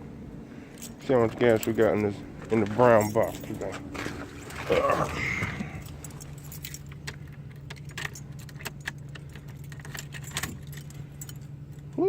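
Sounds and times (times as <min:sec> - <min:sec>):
low hum: 0:00.0 - 0:12.0
keys jangling: 0:02.7 - 0:03.8, 0:05.7 - 0:12.0.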